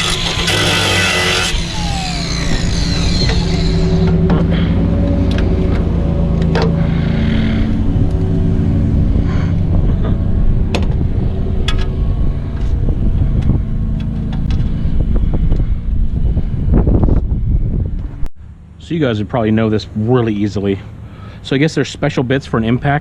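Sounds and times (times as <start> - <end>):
motor humming: 0.0 - 18.1.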